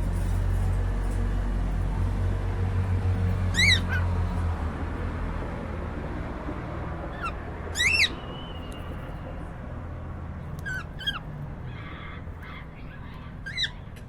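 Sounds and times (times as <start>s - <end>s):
cockatiel chirping: 3.6s - 4.0s, 7.2s - 8.9s.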